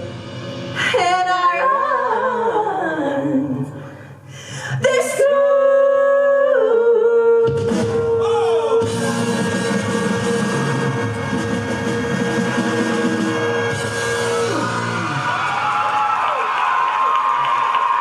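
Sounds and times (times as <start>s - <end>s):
musical accompaniment: 0.0s - 1.3s, 7.5s - 15.8s.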